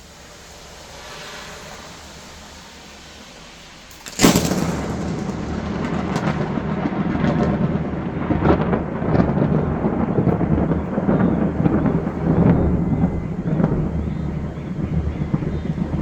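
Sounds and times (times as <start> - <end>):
heavy rain: 0.0 - 16.0
thunder cracking and rumbling: 3.9 - 16.0.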